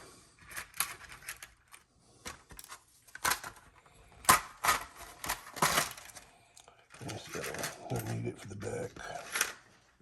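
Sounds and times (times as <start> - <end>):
metal parts clicking and clattering: 0.4 - 6.2, 6.9 - 8.3, 9.1 - 9.6.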